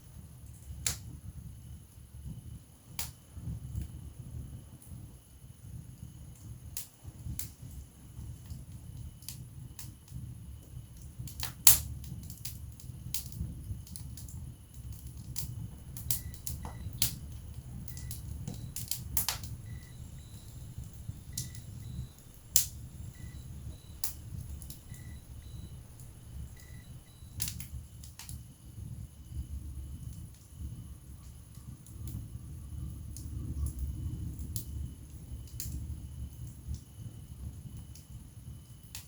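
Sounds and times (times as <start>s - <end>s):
fire flames rumbling: 5.7s - 38.8s
logs crackling and popping: 15.1s - 28.4s.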